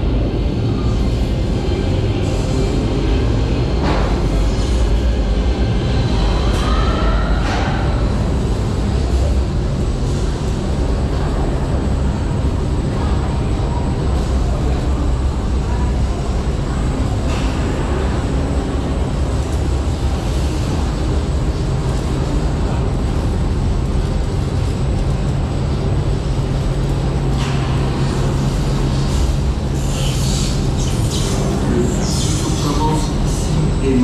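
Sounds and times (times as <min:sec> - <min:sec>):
roller coaster rumbling on track: 0:00.0 - 0:34.0.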